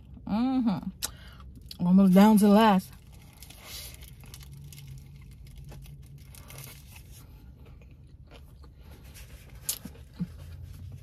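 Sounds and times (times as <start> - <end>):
low steady hum: 0.0 - 11.0
person chewing crunchy food: 3.0 - 11.0.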